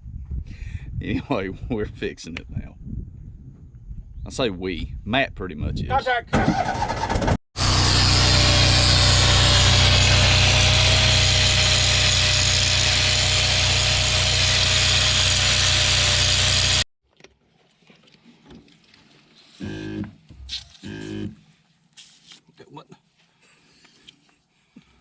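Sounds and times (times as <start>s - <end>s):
loud machine hum and whine: 7.6s - 16.9s.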